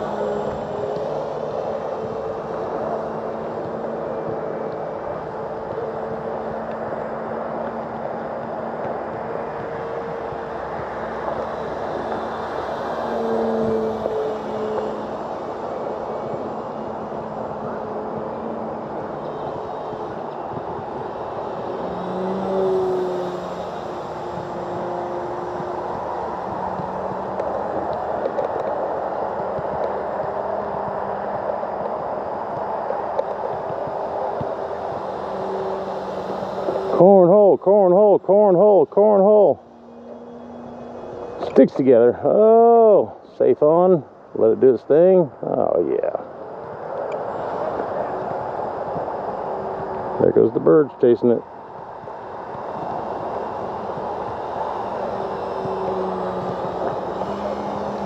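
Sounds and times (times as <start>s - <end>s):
electric model plane motor hum: 0.0s - 42.8s, 51.4s - 58.0s
rushing air noise: 0.0s - 58.0s.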